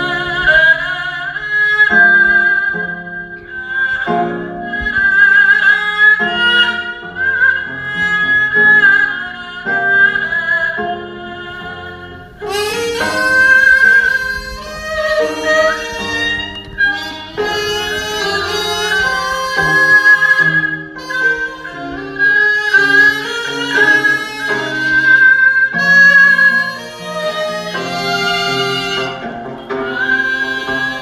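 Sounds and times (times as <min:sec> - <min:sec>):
bamboo flutes slow melody: 0:10.2 - 0:31.0.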